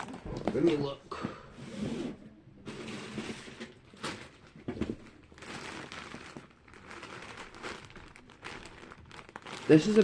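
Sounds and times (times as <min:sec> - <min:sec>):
rustling of belongings: 0:02.6 - 0:10.0
plastic bag rustling: 0:02.7 - 0:10.0.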